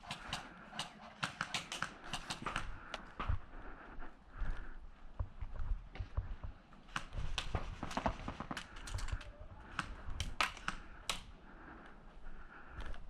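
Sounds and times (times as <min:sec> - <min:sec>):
airsoft guns firing: 0:00.0 - 0:02.8, 0:06.9 - 0:09.0.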